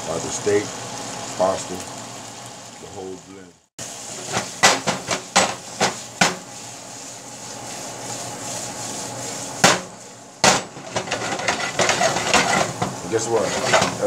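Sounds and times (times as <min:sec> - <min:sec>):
meat sizzling: 0:00.0 - 0:14.0
frying pan knocking on grate: 0:04.2 - 0:06.5, 0:09.6 - 0:14.0.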